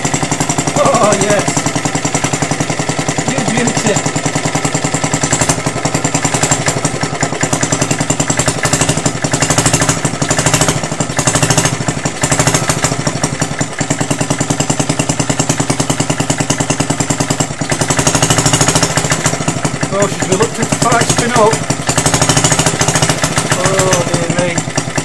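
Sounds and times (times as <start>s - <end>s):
lawnmower engine running: 0.0s - 25.0s.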